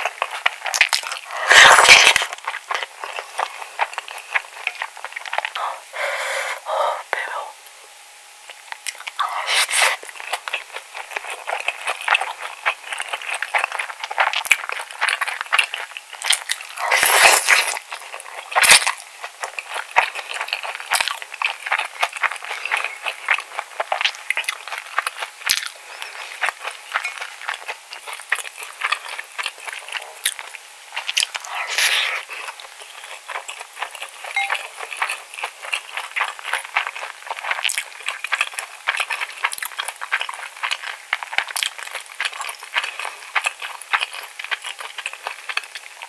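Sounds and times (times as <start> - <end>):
close chewing with mouth clicks: 0.0 - 5.9, 8.4 - 46.0
spoon scraping and clinking in bowl: 34.3 - 34.7.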